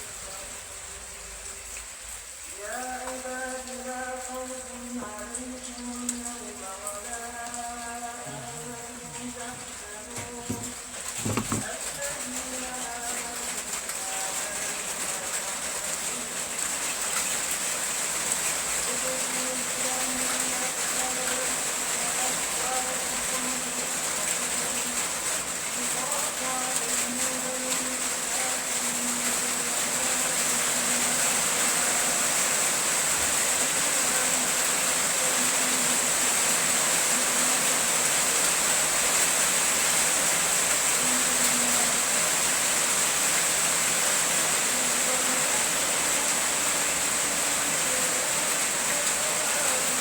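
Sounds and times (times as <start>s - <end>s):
rain falling: 0.0s - 50.0s.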